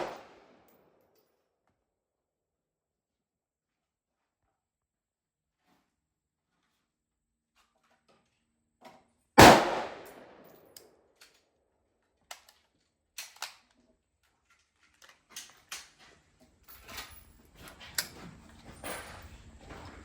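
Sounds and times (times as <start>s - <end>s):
rifle gunshot with echo: 0.0s - 0.4s, 9.4s - 10.4s.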